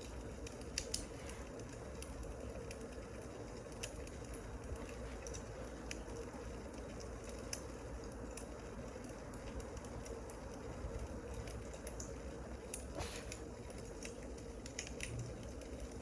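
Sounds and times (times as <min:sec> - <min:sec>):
fire pops and snaps: 0:00.0 - 0:16.0
low fire hiss: 0:00.0 - 0:16.0
wood fire crackling: 0:00.0 - 0:16.0.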